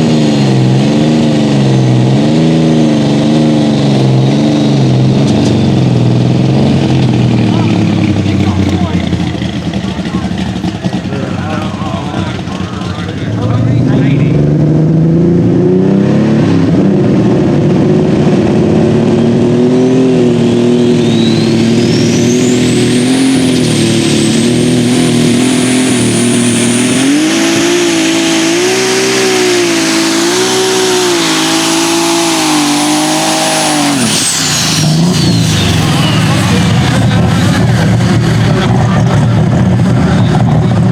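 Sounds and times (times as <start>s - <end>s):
tractor engine at full power: 0.0s - 40.9s
high turbo whistle: 20.1s - 38.2s.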